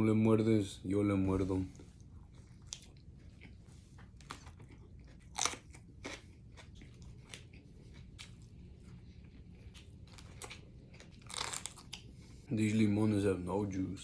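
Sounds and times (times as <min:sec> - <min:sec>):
low steady hum: 0:00.0 - 0:14.0
crunchy bites and chewing: 0:02.6 - 0:08.5, 0:09.7 - 0:12.2.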